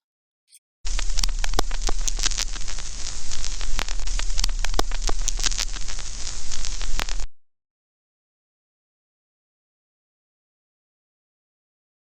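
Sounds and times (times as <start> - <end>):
low hum: 0.9 - 7.3
crackling static hiss: 0.9 - 7.4
sharp static clicks: 0.9 - 7.4.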